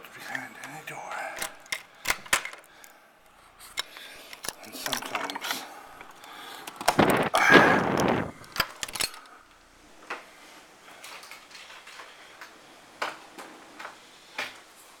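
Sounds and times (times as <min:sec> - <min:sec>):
loud burst of noise: 0:06.9 - 0:08.6.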